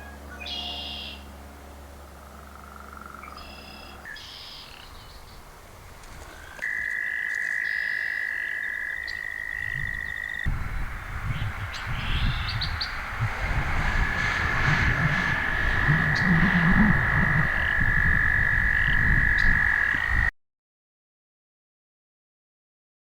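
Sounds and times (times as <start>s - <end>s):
frog trilling: 2.2s - 5.0s, 6.4s - 20.3s
high bird chirps: 3.2s - 5.4s, 6.4s - 20.2s
wind rumbling on microphone: 3.9s - 6.9s, 8.9s - 20.3s.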